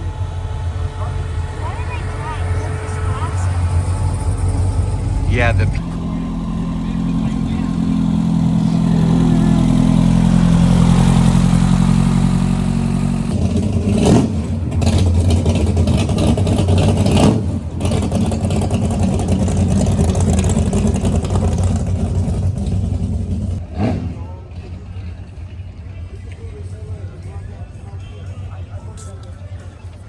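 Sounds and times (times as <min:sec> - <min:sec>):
loud engine bursts: 0:00.0 - 0:24.2
car engine rumbling: 0:00.0 - 0:27.8.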